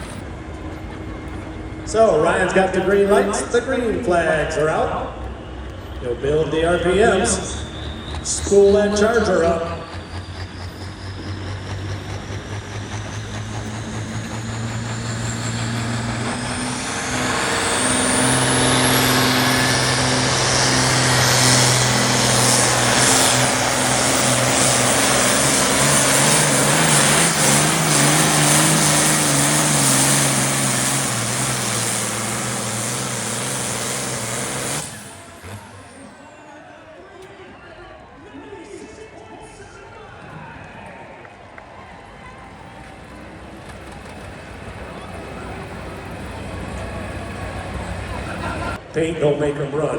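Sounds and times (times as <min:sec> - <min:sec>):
diesel tractor engine: 0:00.0 - 0:37.4, 0:40.0 - 0:49.9
turbo whistle: 0:07.1 - 0:12.3.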